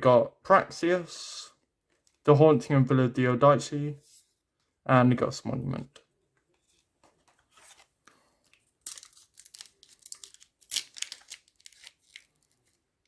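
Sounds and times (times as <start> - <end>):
card pack wrapper crinkling and tearing: 7.6 - 12.9.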